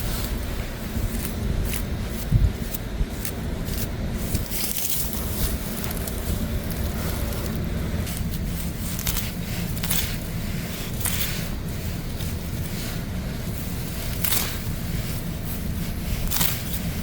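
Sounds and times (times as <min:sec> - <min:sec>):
plants rustling and crackling: 0:00.0 - 0:17.0
steady low rumble: 0:00.0 - 0:17.0
snaps: 0:14.0 - 0:14.8, 0:16.2 - 0:17.0.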